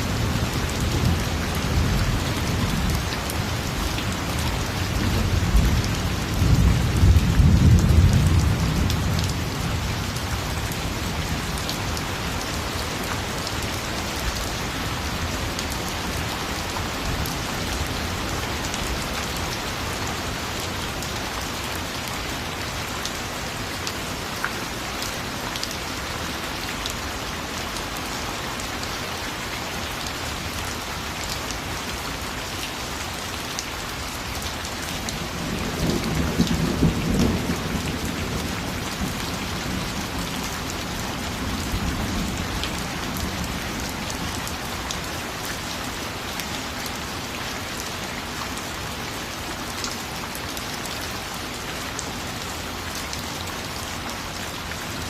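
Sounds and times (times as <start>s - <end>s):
steady rain falling: 0.0s - 55.0s
low thunder rumbles: 35.4s - 40.4s.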